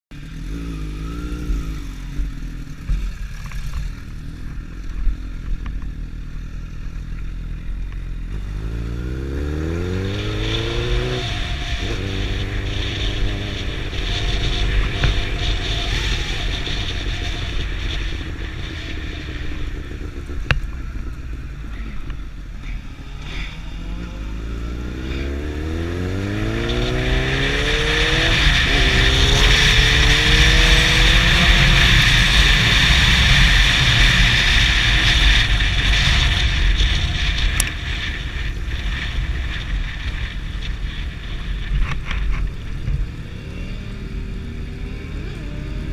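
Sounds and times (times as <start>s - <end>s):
motorcycle engine accelerating: 0.1s - 45.9s
rushing noise: 8.3s - 43.6s.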